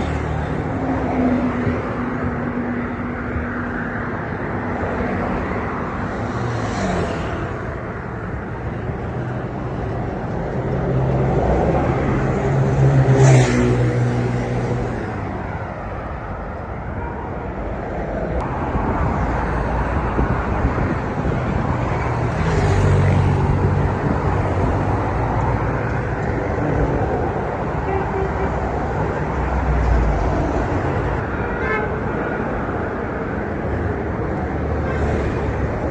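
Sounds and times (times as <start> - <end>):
vehicles passing: 0.0 - 35.9.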